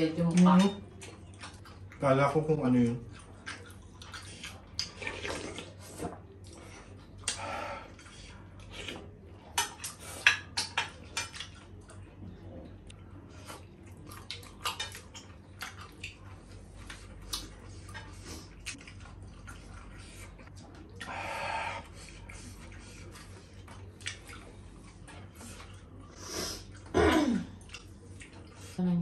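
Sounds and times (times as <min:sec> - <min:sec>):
wet chewing: 0:00.2 - 0:28.9
slurping noodle soup: 0:04.1 - 0:09.0.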